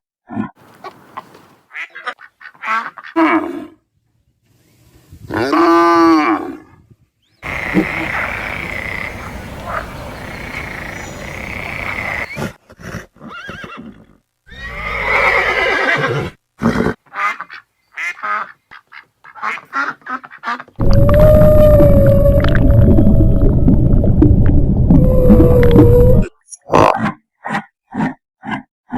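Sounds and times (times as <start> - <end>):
steady noise: 7.4 - 12.3, 20.8 - 26.2
farm animal calls: 7.4 - 12.5.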